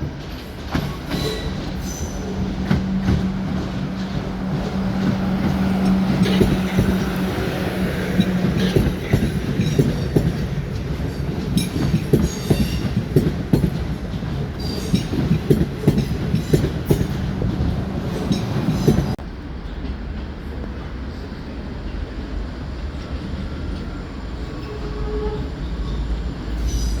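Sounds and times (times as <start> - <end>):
train wheels clattering over rail joints: 0.0 - 19.2
steady rumble: 1.6 - 14.6.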